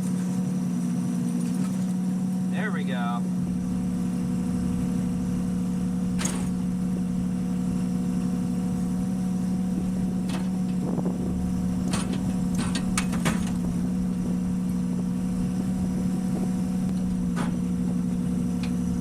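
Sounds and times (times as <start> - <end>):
electric hub motor hum: 0.0 - 19.0
wind on microphone: 9.7 - 18.4.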